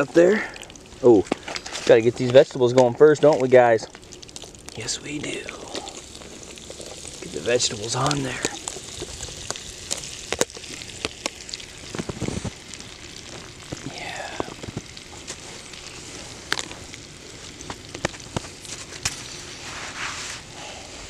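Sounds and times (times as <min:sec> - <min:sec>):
wood fire pops and crackles: 0:00.0 - 0:20.6
vegetables sizzling in a skillet: 0:04.6 - 0:20.5.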